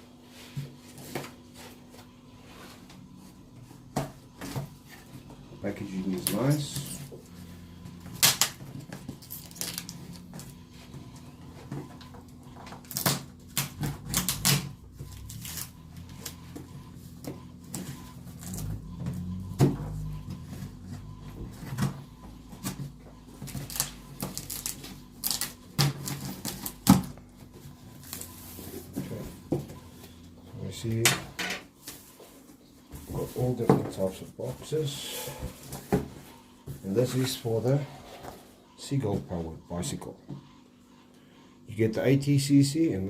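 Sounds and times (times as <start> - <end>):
faint steady hum: 0.0 - 43.0
cardboard boxes being handled: 14.8 - 30.6.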